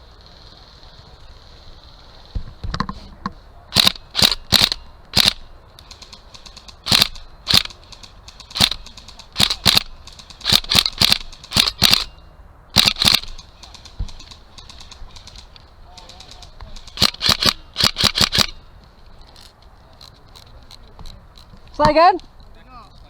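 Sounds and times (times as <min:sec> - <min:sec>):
airsoft rifle shots: 0:03.7 - 0:12.2, 0:12.8 - 0:18.6.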